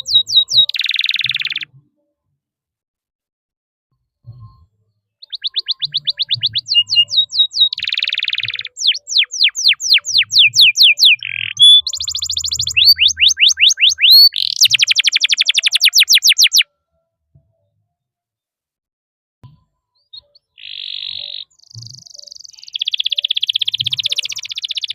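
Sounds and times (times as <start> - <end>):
canary singing: 0.0 - 1.7, 5.2 - 16.6, 20.1 - 24.9.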